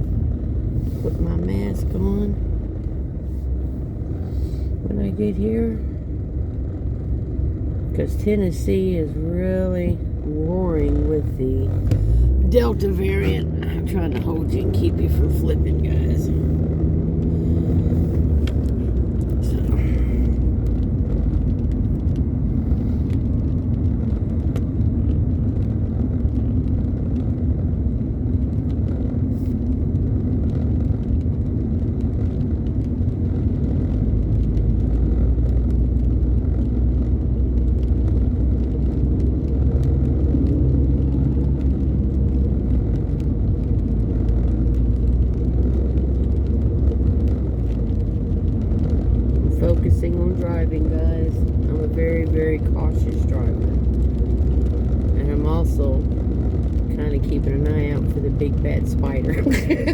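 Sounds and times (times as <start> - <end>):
car engine and road rumble: 0.0 - 59.9
faint light ticks: 16.7 - 27.6, 28.4 - 50.5.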